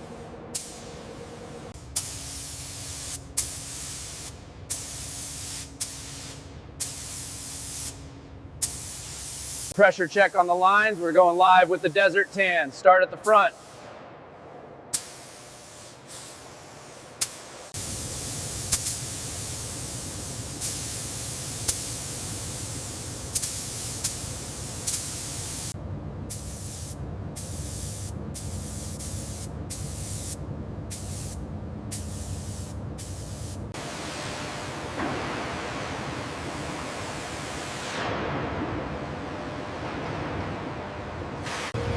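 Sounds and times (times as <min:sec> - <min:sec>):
paint spray gun hissing: 0:08.6 - 0:09.8, 0:15.0 - 0:33.7.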